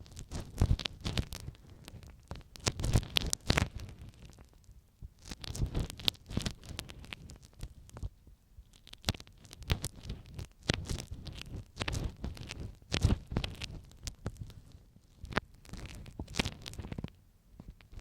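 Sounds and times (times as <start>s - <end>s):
ear pick scratches and clicks: 0.0s - 4.6s, 5.2s - 18.0s.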